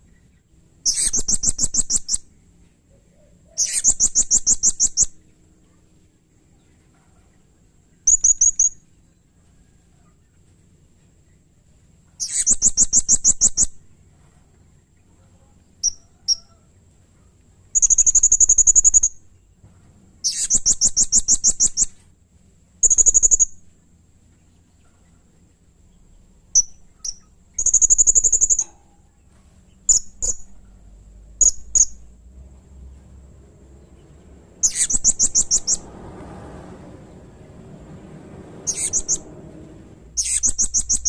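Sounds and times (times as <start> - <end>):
parrot shrill rapid trills: 0.9 - 2.2, 3.6 - 5.1, 12.2 - 13.7, 20.2 - 21.9, 22.8 - 23.5, 26.6 - 28.7, 34.6 - 35.8, 38.6 - 39.2, 40.2 - 41.0.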